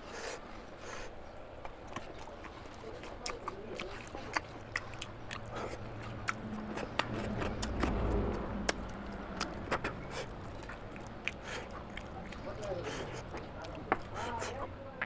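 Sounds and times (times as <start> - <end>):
chewing with wet smacks: 0.2 - 15.0.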